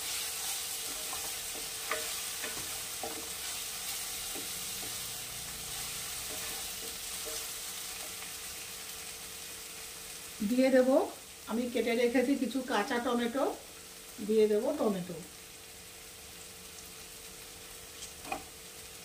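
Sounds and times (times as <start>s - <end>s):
spatula stirring and scraping: 0.0s - 9.0s
onion sizzling in oil: 0.0s - 19.0s.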